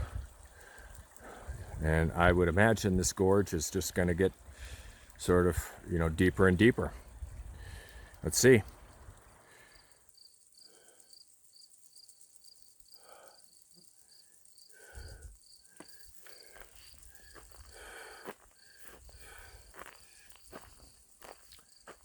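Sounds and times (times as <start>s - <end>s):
insect chirping: 0.0s - 22.0s
footsteps crunching on trail: 15.7s - 22.0s.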